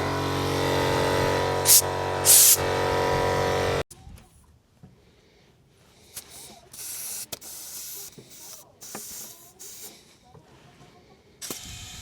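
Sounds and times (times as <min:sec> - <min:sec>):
compressed air hissing: 0:01.6 - 0:02.8, 0:06.0 - 0:10.2, 0:11.4 - 0:12.0.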